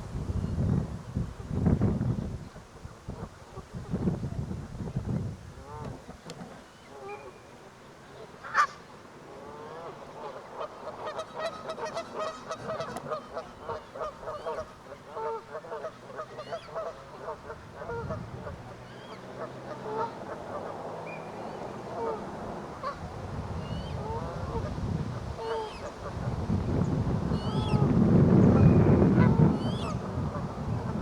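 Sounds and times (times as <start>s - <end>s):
geese honking: 9.4s - 23.0s, 23.7s - 26.0s.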